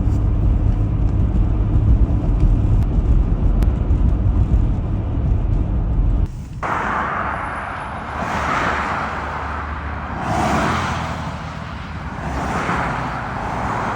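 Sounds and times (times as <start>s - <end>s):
low vehicle rumble: 0.0s - 13.9s
wind: 0.0s - 13.9s.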